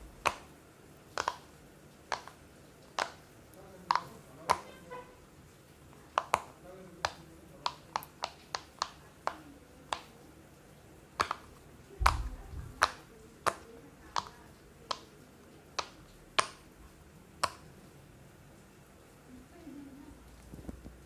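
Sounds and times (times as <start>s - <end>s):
person making popping sounds: 0.0s - 0.5s.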